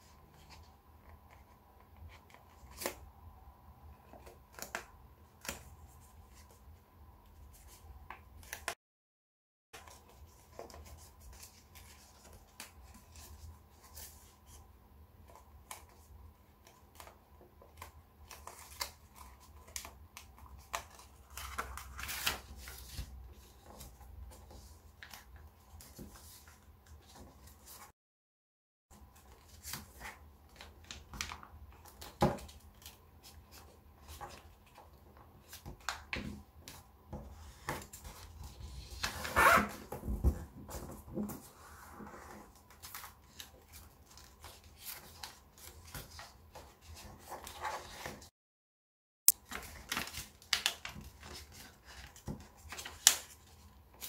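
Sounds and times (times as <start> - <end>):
paper rustling and crinkling: 42.3 - 48.3, 49.4 - 54.0.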